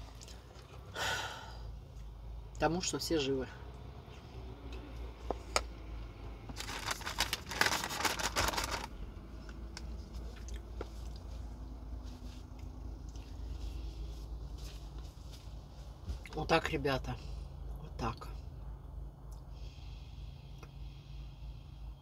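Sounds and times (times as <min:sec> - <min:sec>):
steady low hum: 0:00.0 - 0:22.0
loud crinkling rustle: 0:06.6 - 0:09.0
chewing food: 0:09.5 - 0:11.4.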